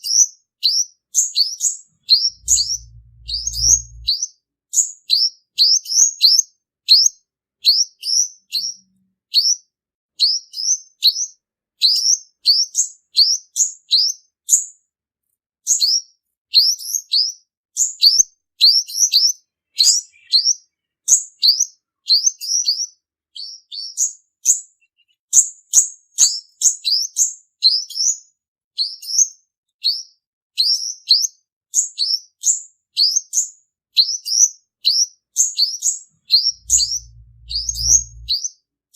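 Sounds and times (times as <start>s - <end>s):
sunbird singing high chirps: 1.4s - 4.2s, 19.7s - 22.8s, 35.4s - 38.4s.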